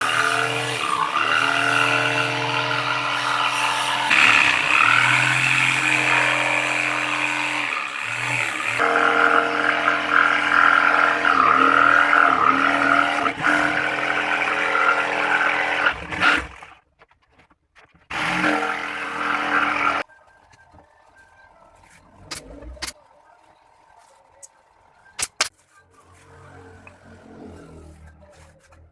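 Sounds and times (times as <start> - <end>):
power tool motor whining: 0.0 - 16.8, 18.1 - 20.0.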